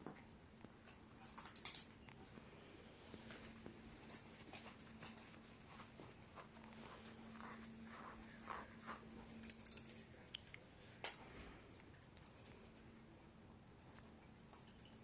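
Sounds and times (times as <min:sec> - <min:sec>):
low steady hum: 0:00.0 - 0:15.0
parrot clicking and scratching: 0:00.6 - 0:02.0.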